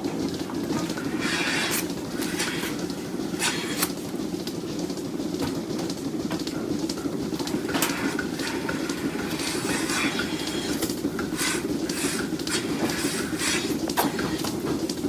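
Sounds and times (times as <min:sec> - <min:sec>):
machinery rumble: 0:00.0 - 0:15.0.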